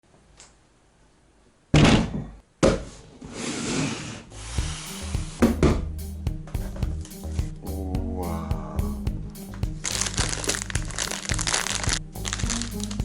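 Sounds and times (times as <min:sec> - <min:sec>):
scraping or rubbing: 0:03.1 - 0:05.6
background music with a beat: 0:04.4 - 0:13.0.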